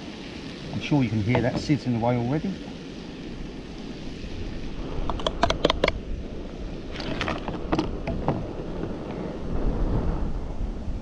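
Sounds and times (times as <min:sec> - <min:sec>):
vegetables sizzling in a wok: 0:00.0 - 0:09.5
wind rumble on microphone: 0:00.2 - 0:11.0
sharp clicks and clatters: 0:05.0 - 0:06.0.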